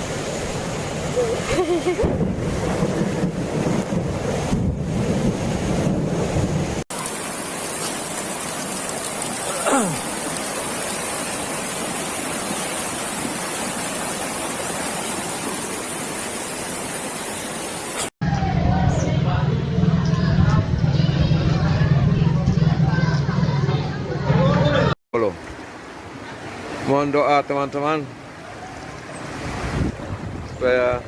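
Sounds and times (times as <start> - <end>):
floodwater rushing: 0.0 - 18.2, 25.2 - 31.0.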